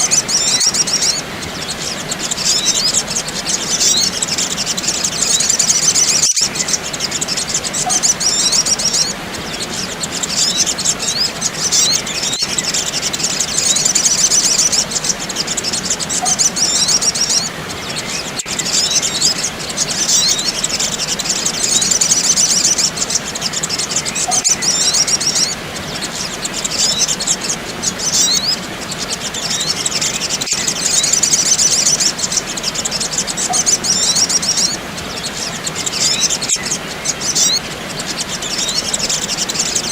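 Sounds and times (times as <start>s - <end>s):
bird chirps and twitters: 0.0s - 39.9s
steady hiss: 0.0s - 39.9s.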